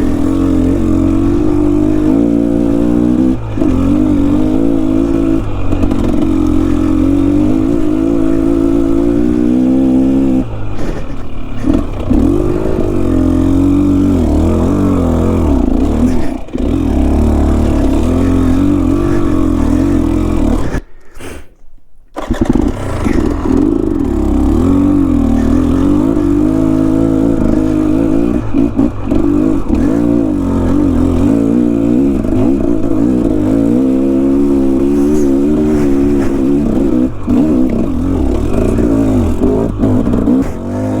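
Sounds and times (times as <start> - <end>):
dirt bike engine revving: 0.0 - 20.9, 22.2 - 41.0.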